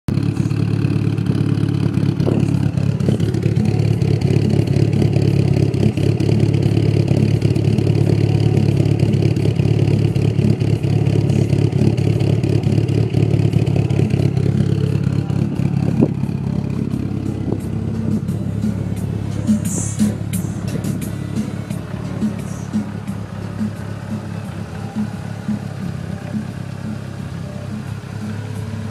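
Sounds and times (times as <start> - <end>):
car engine deep exhaust note: 0.1 - 28.9.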